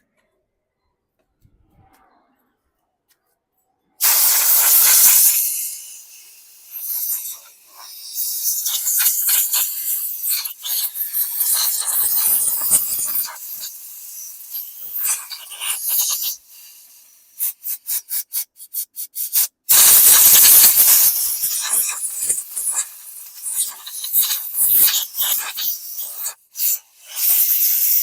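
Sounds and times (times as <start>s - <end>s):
scrubbing small metal parts: 4.0s - 16.4s
loud continuous spray hiss: 4.0s - 17.3s, 19.7s - 28.0s
short spray hisses: 4.0s - 28.0s.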